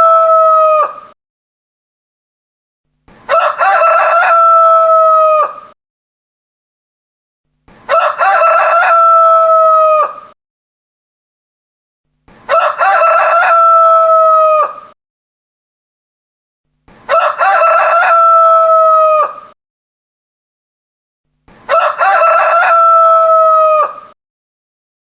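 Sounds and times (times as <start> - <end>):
rooster crowing: 0.0 - 1.1, 3.3 - 5.8, 7.9 - 10.4, 12.5 - 15.0, 17.1 - 19.5, 21.7 - 24.2.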